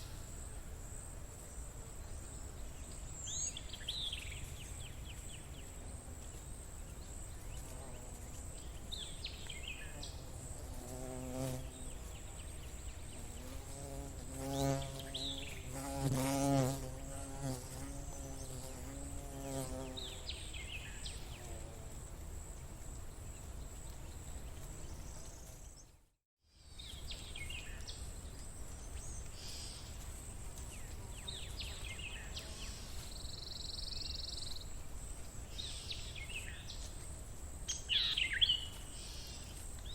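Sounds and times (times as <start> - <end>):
fly buzzing: 10.0 - 12.3, 13.1 - 20.3.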